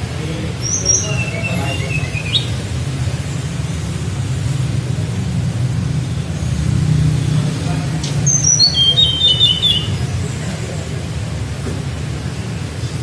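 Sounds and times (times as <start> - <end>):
bird whistled song: 0.6 - 2.6, 8.2 - 10.1.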